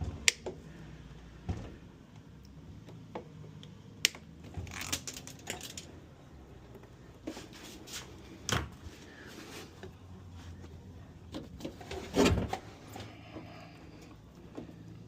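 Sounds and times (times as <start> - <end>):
tools and parts clicking and knocking: 3.1 - 6.0.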